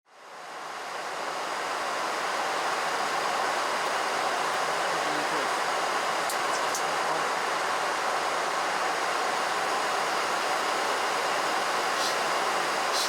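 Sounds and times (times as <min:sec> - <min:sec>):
airplane cockpit rushing noise: 0:11.4 - 0:13.0.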